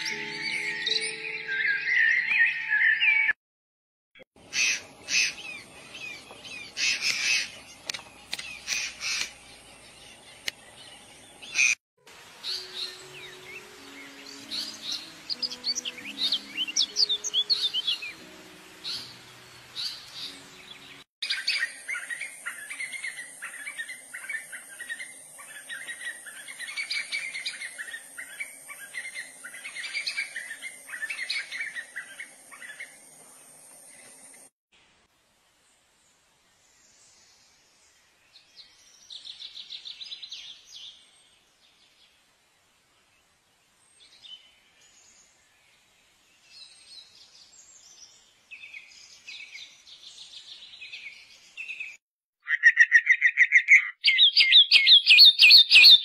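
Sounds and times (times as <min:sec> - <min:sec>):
birds chirping: 0:04.4 - 0:34.5, 0:43.9 - 0:56.0.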